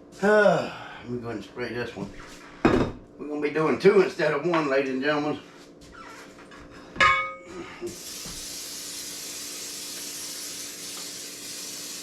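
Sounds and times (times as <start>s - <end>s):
ringing metal clank: 7.0s - 7.4s
aerosol spray hissing: 7.9s - 12.0s.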